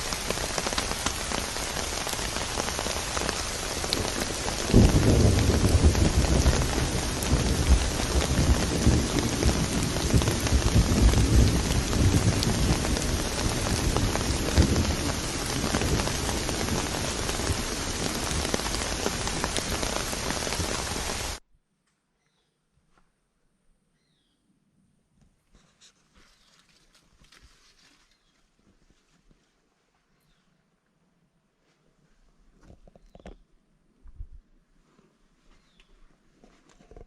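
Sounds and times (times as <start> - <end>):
heavy rain: 0.0 - 21.4
thunder rumbling: 0.0 - 21.4.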